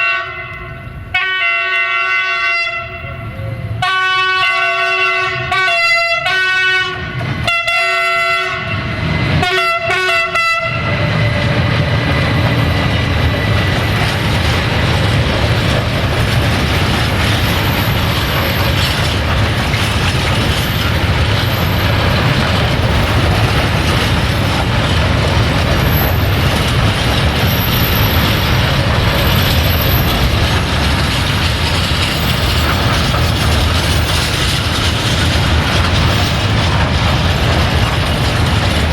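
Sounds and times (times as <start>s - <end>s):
locomotive horn blasts: 0.0s - 11.0s
freight wagons rumbling past: 7.0s - 38.9s.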